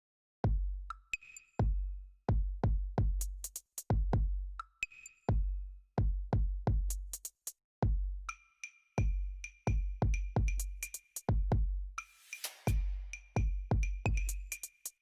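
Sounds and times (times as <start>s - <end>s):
electronic music with drum beat: 9.0s - 15.0s.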